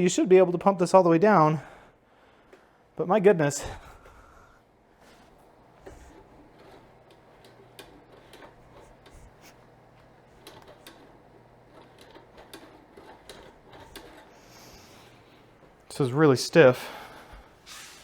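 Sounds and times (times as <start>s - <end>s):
faint clicks and ticks: 5.8s - 15.7s.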